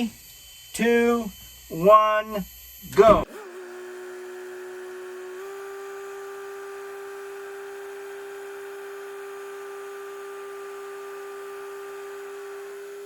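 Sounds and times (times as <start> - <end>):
truck warning buzzer tone: 0.0 - 4.0.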